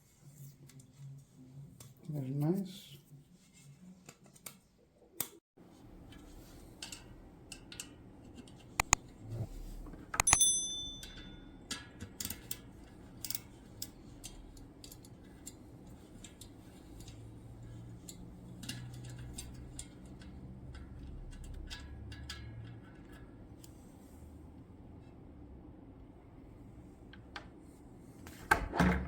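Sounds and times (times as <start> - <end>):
metal tools clinking: 10.2 - 11.5.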